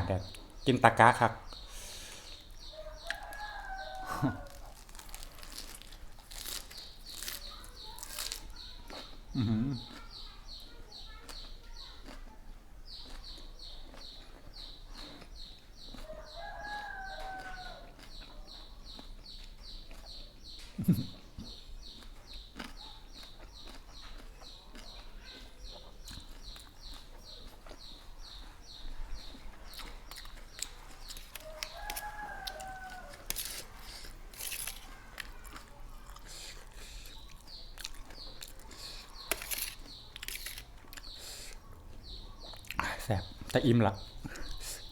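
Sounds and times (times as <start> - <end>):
rooster crowing: 2.7 - 4.8, 16.1 - 18.0, 31.3 - 33.5.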